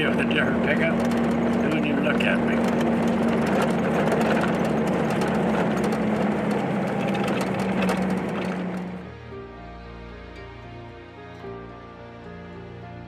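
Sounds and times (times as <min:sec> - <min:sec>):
pickup truck engine running: 0:00.0 - 0:09.1.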